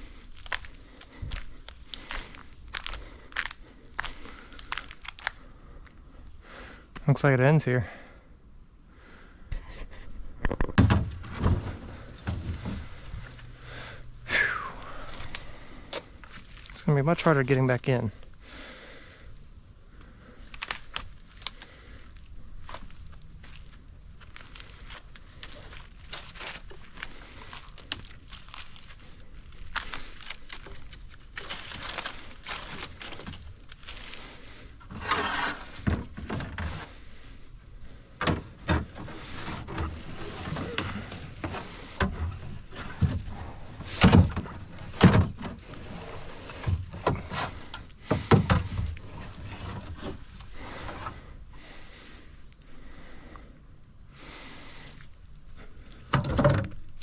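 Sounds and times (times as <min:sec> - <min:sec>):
plastic kayak hull knocking and scraping: 0:10.4 - 0:13.3
rustling: 0:20.3 - 0:51.3.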